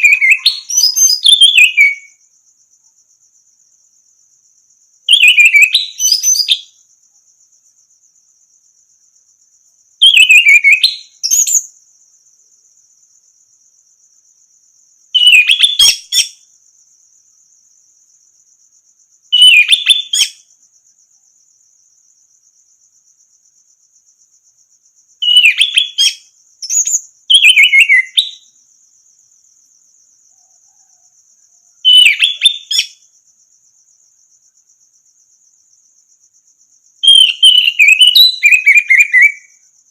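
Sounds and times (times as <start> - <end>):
thrush singing whistled phrases: 0.0 - 2.2, 5.1 - 6.7, 10.0 - 11.6, 15.2 - 16.4, 19.4 - 20.4, 25.2 - 28.4, 31.9 - 32.9, 37.0 - 39.5.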